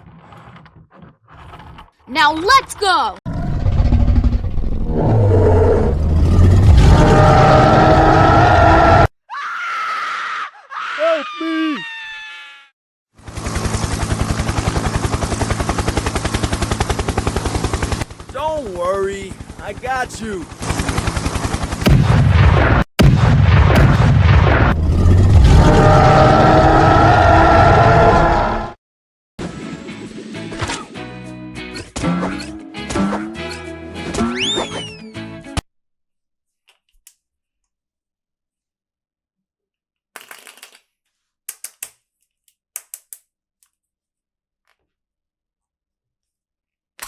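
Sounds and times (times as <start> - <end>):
booming rumbling crashes: 21.8 - 27.8
plastic toys clicking and tapping: 40.2 - 43.8.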